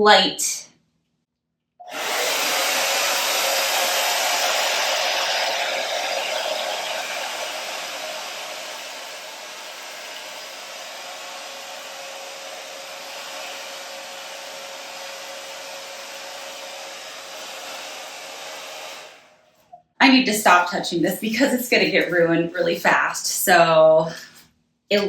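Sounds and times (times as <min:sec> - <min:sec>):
hair dryer blowing: 0:01.8 - 0:19.2.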